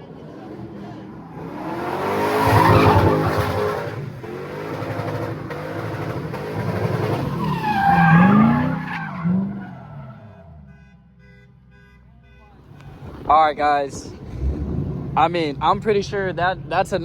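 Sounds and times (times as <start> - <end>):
tires squealing: 0.0 - 10.7, 12.4 - 16.8
car engine revving hard: 0.3 - 9.6, 14.0 - 15.9.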